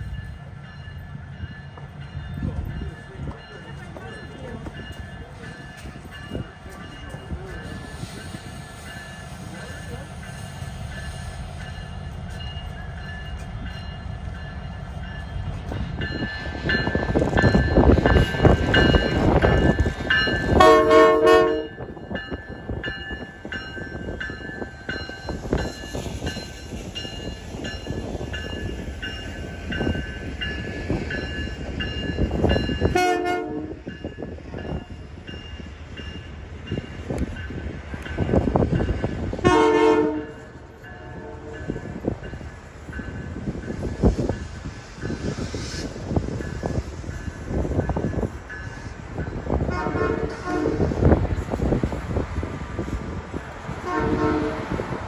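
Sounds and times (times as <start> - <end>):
freight train rumbling: 0.0 - 55.0
locomotive horn blasts: 20.6 - 21.8, 32.9 - 33.8, 39.4 - 40.4, 49.7 - 51.0, 53.8 - 54.8.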